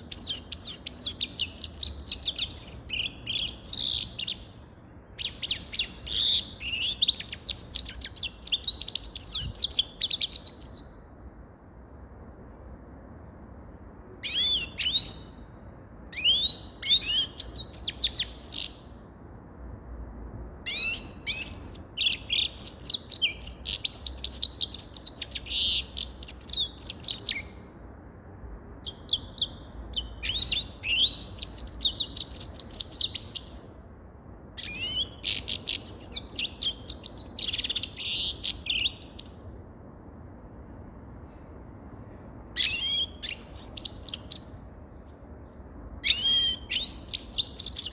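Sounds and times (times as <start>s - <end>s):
finch twittering song: 0.0s - 11.2s, 14.2s - 15.5s, 16.1s - 18.9s, 20.7s - 27.6s, 28.8s - 33.8s, 34.6s - 39.6s, 42.6s - 44.8s, 45.5s - 47.9s.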